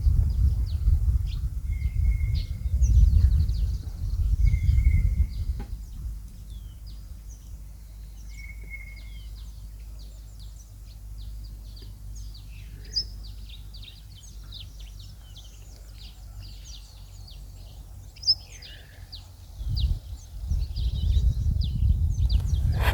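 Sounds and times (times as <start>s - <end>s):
low rumble: 21.7s - 22.9s
birds chirping: 22.2s - 22.9s.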